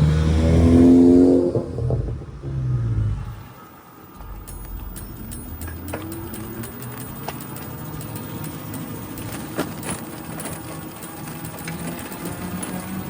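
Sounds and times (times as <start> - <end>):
bicycle whirring and rattling: 0.0 - 13.0
bicycle clicks and ticks: 4.1 - 13.0.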